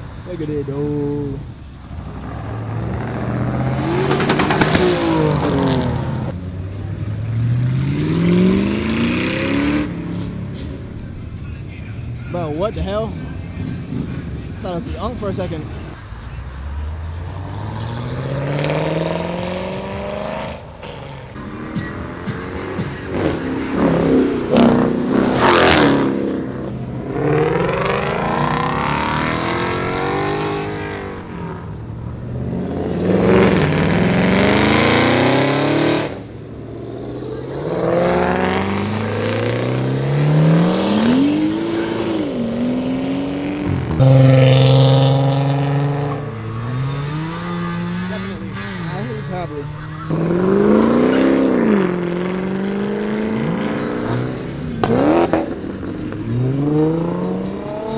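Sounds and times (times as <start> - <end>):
cars accelerating past: 0.0 - 14.6, 15.2 - 57.9
car starting up: 0.8 - 7.2.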